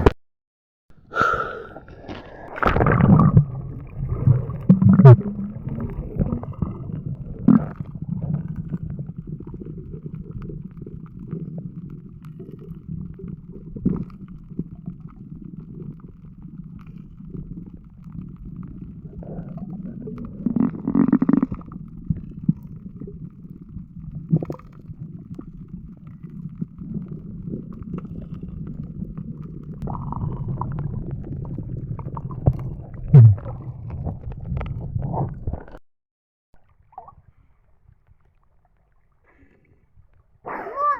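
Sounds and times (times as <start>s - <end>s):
muffled water sloshing: 1.7s - 35.8s
low rumble: 2.9s - 12.2s.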